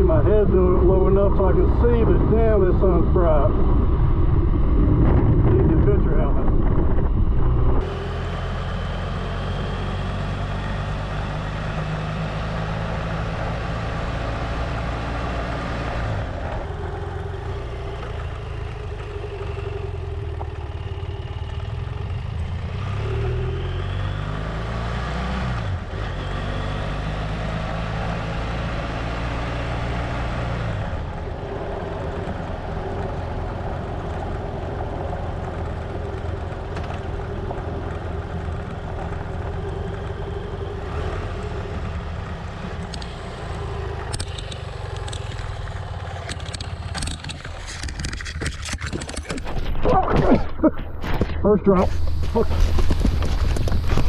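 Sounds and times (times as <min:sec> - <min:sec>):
wind noise: 0:00.0 - 0:07.9, 0:46.3 - 0:54.0
road noise: 0:00.0 - 0:54.0
motorcycle engine running: 0:16.0 - 0:24.4, 0:30.9 - 0:54.0.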